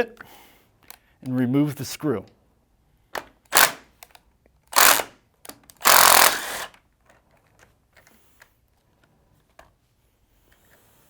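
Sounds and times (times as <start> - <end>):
power driver running: 4.8 - 5.1, 5.8 - 6.7.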